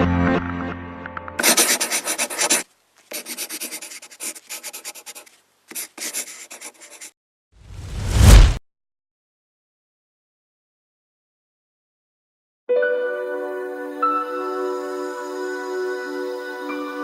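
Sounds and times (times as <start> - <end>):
music: 0.0 - 1.4, 12.7 - 17.0
scraping strokes on hard surface: 1.4 - 7.2
loud rising whoosh: 7.7 - 8.6.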